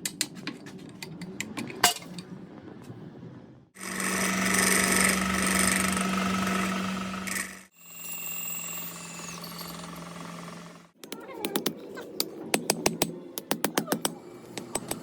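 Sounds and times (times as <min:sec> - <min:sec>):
power tool humming: 0:03.8 - 0:11.0.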